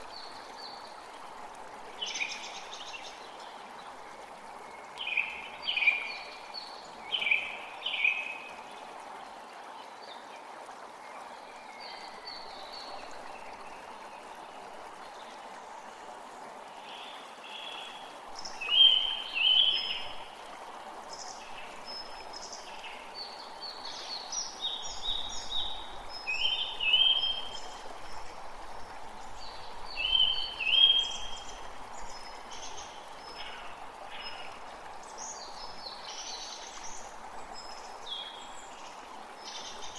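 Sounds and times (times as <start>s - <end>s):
creek water rushing: 0.0s - 39.9s
songbirds singing: 1.9s - 8.9s, 16.7s - 39.9s.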